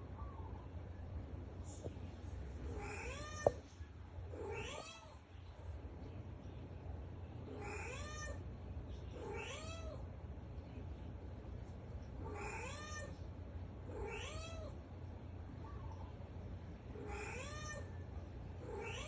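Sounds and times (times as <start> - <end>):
steady low hum: 0.0 - 19.0
cat meowing: 4.4 - 5.2, 9.2 - 10.0, 12.2 - 13.1, 13.9 - 14.7, 17.0 - 17.9, 18.6 - 19.0.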